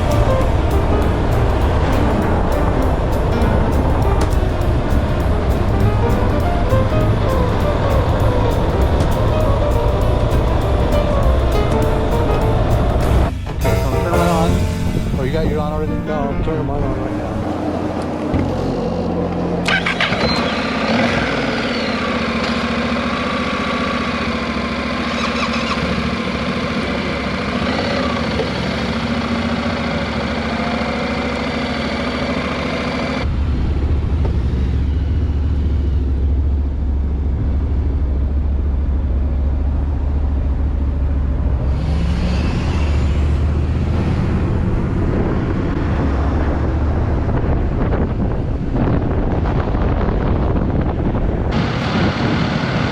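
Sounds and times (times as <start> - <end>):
road noise: 0.0 - 52.9
wind rumble on microphone: 33.2 - 52.9.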